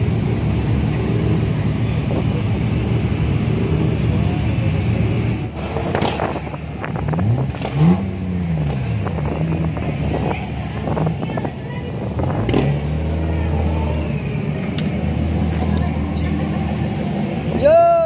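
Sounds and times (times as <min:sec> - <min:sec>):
car engine idling: 0:00.0 - 0:18.0
engine revving: 0:01.0 - 0:17.6.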